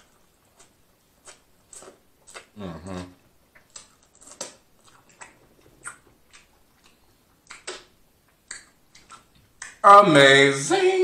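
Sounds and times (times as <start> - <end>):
chewing corn on the cob: 0.0 - 9.8.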